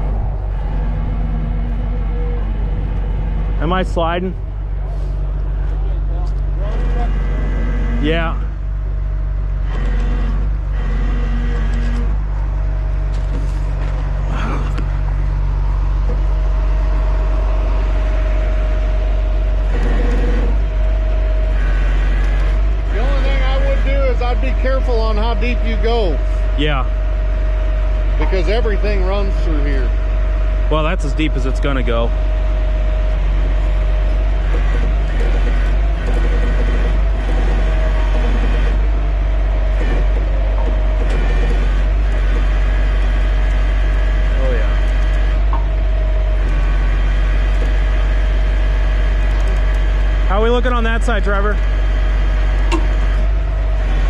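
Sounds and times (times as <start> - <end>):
heavy diesel truck engine: 0.0 - 54.0
thin steady whine: 0.0 - 54.0.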